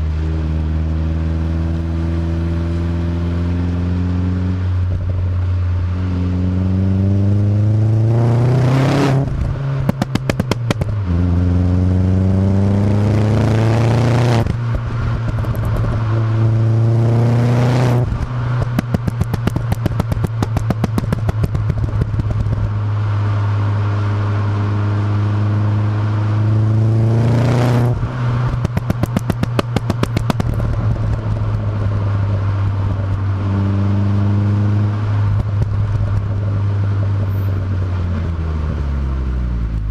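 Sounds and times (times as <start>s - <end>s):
car engine revving: 0.0s - 39.9s
exhaust pops and crackles: 9.2s - 11.4s, 14.4s - 16.3s, 17.9s - 22.8s, 27.8s - 33.5s, 35.0s - 38.4s.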